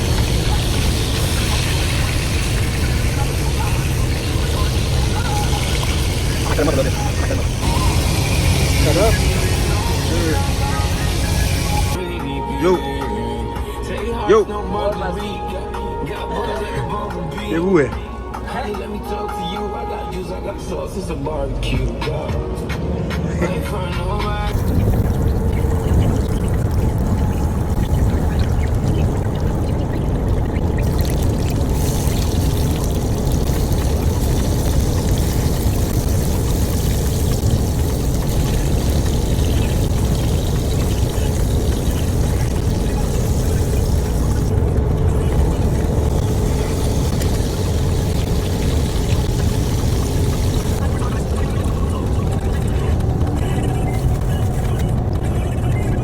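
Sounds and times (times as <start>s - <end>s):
pork chops sizzling in a pan: 0.0s - 12.0s, 30.8s - 44.5s, 45.2s - 51.7s
truck cab low rumble: 23.9s - 56.0s.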